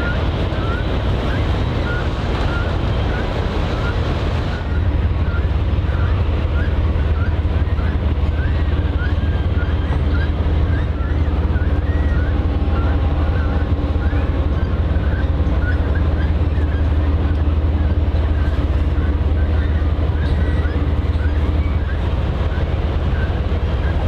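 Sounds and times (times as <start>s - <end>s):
water noise: 0.0s - 20.4s
ship engine rumble: 0.0s - 24.0s
wind: 0.0s - 24.0s.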